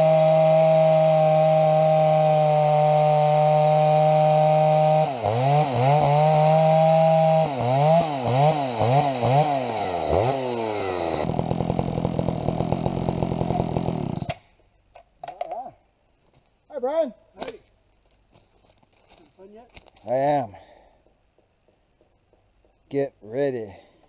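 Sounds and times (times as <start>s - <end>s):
chainsaw cutting wood: 0.0s - 14.5s.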